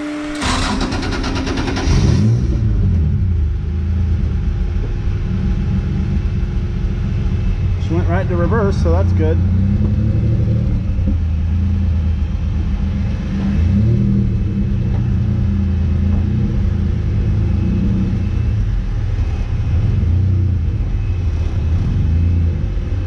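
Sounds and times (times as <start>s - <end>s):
buggy engine idling: 2.7s - 13.6s.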